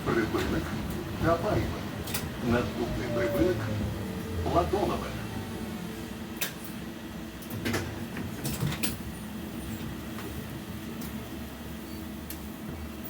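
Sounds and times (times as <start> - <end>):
tram electrical hum: 0.0 - 13.0.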